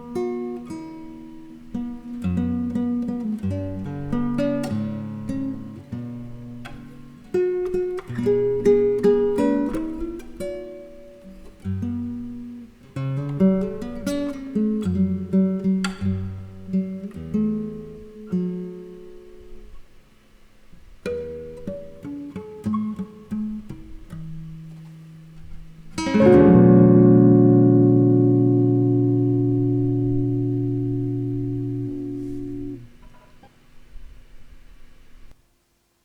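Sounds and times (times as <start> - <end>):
nylon-string guitar: 0.0 - 35.4
electric guitar: 25.4 - 33.5.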